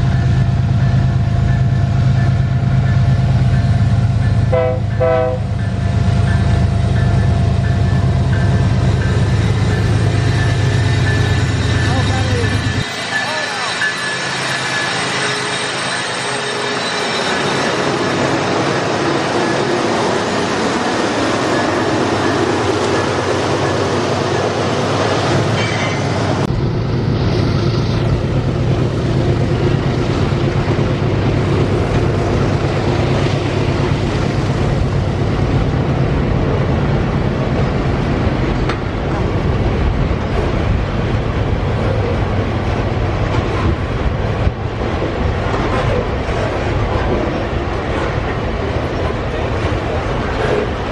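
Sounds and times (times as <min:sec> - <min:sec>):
freight wagons rolling on rails: 0:05.6 - 0:26.5.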